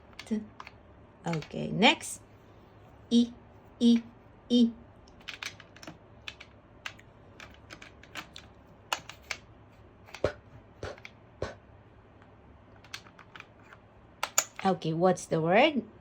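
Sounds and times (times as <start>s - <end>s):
computer keyboard typing: 0.0s - 1.6s, 5.1s - 9.4s, 12.8s - 14.6s.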